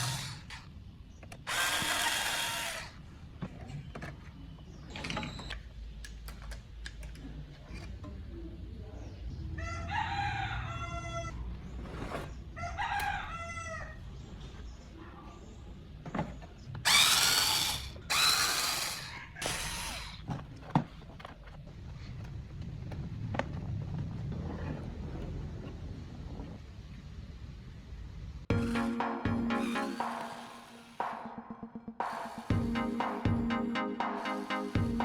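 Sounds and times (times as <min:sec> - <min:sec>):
rooster crowing: 0:09.6 - 0:11.4.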